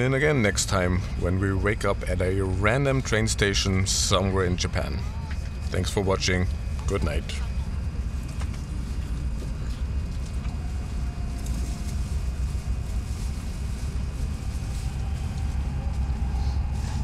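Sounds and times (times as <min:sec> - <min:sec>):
faint rising whine: 0:00.0 - 0:17.0
train rumble from inside cabin: 0:00.0 - 0:17.0.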